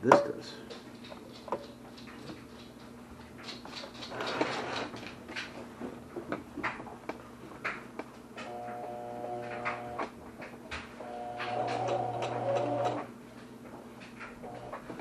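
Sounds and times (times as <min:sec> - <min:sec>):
faint steady hum: 0:06.3 - 0:15.0.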